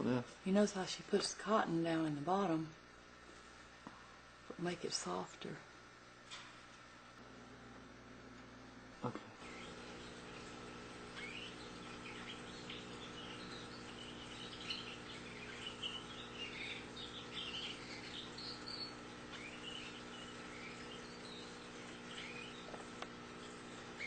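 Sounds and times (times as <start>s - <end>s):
steady low hum: 0.0s - 24.0s
canaries chirping: 9.4s - 24.0s.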